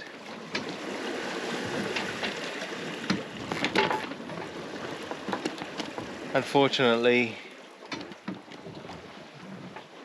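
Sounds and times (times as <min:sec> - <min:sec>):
water washing along hull: 0:00.0 - 0:10.0.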